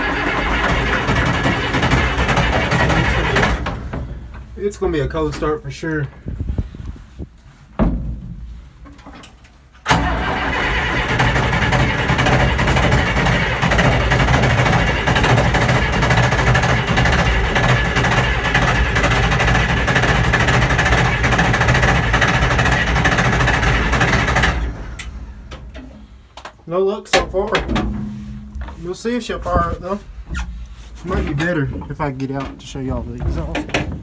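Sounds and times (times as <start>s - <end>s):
diesel engine cranking: 0.0s - 6.3s, 8.9s - 34.0s
thump: 7.8s - 8.5s.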